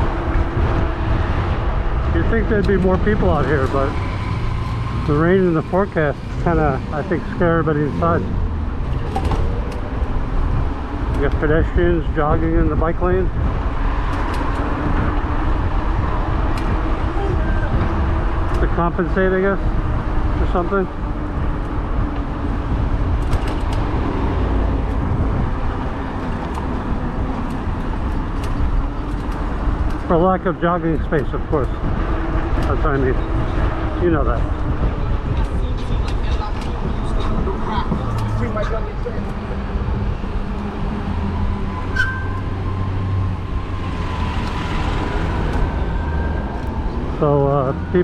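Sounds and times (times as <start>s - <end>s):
wind on microphone: 0.0s - 5.1s, 6.2s - 30.1s, 30.9s - 47.2s
road noise: 0.0s - 48.0s
short high beep: 41.9s - 42.5s.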